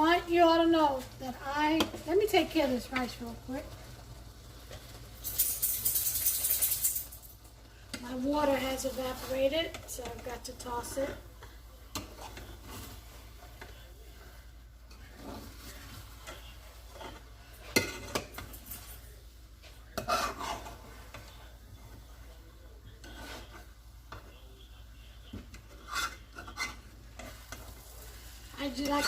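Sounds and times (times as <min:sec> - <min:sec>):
spoon clinks: 0:05.2 - 0:07.2
spoon scraping rice in pot: 0:08.7 - 0:22.1, 0:22.9 - 0:24.3, 0:25.3 - 0:29.0.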